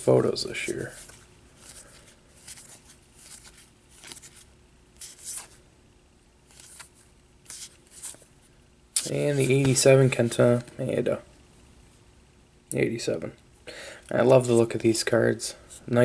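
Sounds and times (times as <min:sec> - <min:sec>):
cards sliding and flicking: 0:09.0 - 0:09.9.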